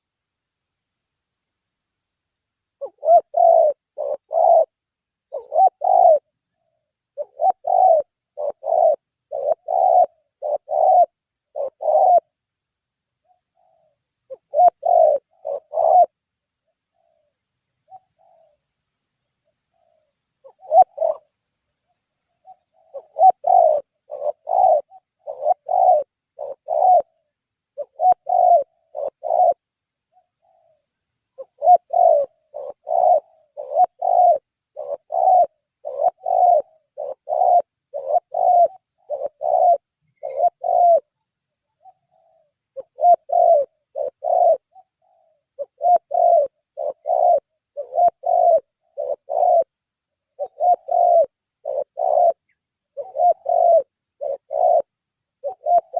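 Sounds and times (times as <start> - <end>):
dove cooing: 2.8 - 12.4, 13.2 - 16.3, 16.9 - 18.6, 19.7 - 21.3, 22.2 - 55.9
faint high chirp: 13.2 - 49.7.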